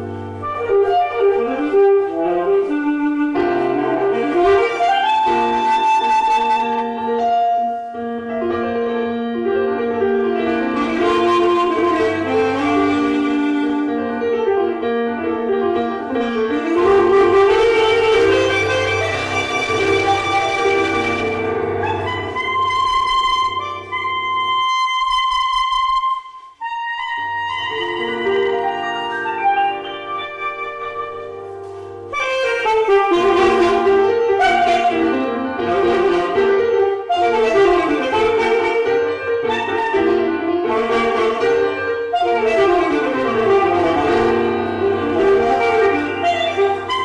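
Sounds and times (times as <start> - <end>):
lower musical accompaniment: 0.0 - 47.0
woodwind melody: 0.0 - 47.0.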